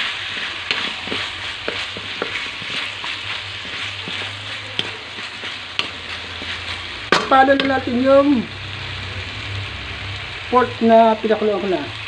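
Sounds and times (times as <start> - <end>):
spatula scraping against pan: 0.0 - 7.8
food sizzling in a hot pan: 0.0 - 12.0.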